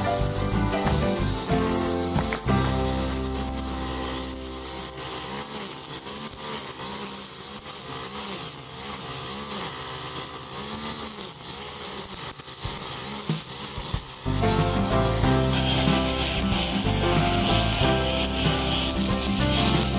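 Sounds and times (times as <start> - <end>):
brush cutter engine cutting grass: 0.0 - 19.9.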